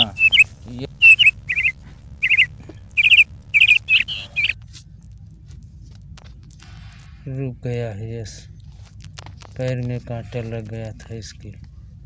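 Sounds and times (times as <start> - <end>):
bird chirping loudly: 0.0 - 4.6.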